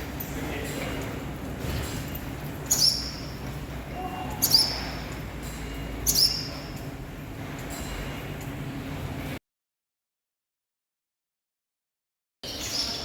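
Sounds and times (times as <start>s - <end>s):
swallows chirping: 2.7s - 3.4s, 4.3s - 5.0s, 6.0s - 6.8s, 12.5s - 13.0s.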